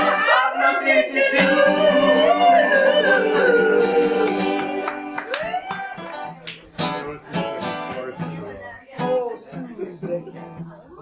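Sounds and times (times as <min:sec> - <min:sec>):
strummed guitar chords: 0:01.2 - 0:05.3.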